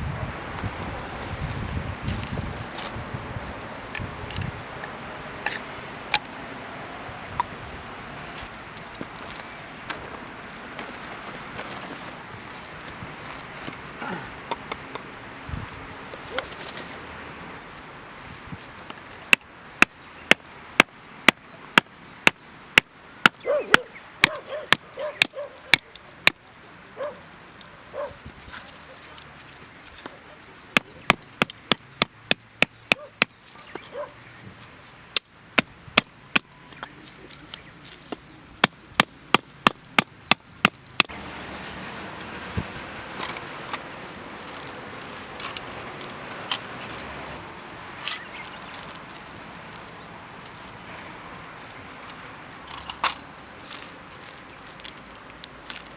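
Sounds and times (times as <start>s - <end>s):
fire starter rod scraping: 51.6s - 55.9s.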